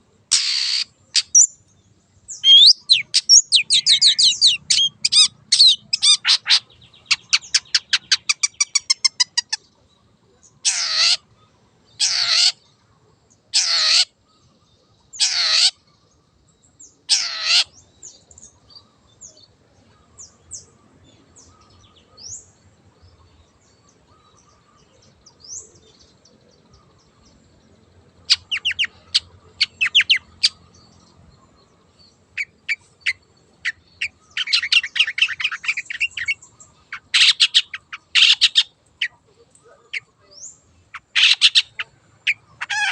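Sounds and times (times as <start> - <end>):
harsh bird calls: 0.0 - 1.6, 2.3 - 12.8, 13.5 - 15.9, 16.8 - 22.5, 23.1 - 42.9
bird rattling and calling: 40.9 - 42.9.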